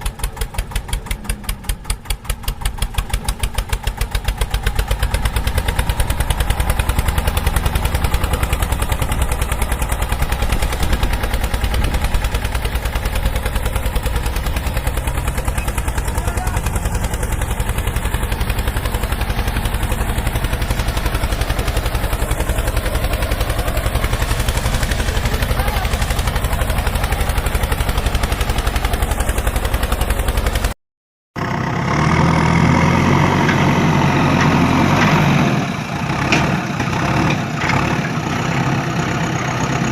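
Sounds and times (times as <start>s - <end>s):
engine running with rapid pulses: 0.0s - 30.8s
heavier lower engine: 0.0s - 30.8s, 31.4s - 39.9s.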